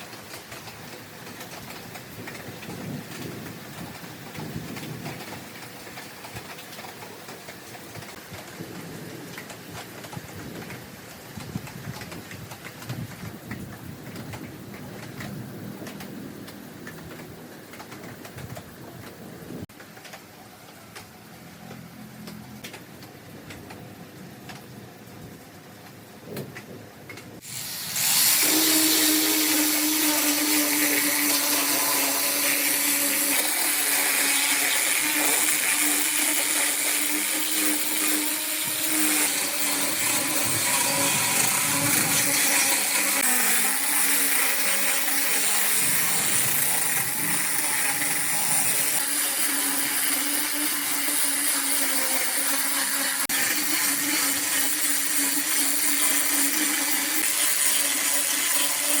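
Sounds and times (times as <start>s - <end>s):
power tool motor whining: 27.4s - 59.0s.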